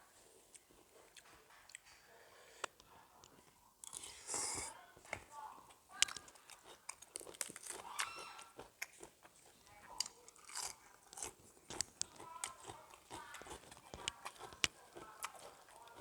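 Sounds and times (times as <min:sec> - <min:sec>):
person chewing crunchy food: 0:03.8 - 0:16.0.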